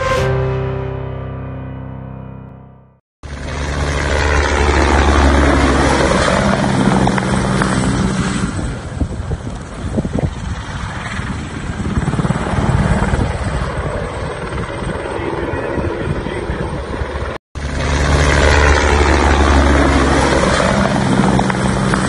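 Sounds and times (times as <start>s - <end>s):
helicopter flying overhead: 3.2s - 22.0s.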